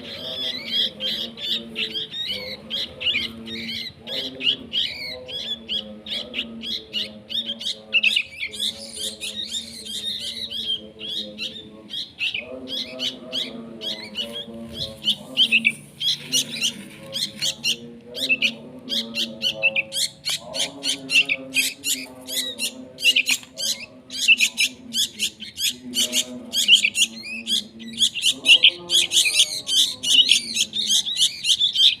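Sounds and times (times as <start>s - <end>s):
bird chirping rapidly: 0.0s - 32.0s.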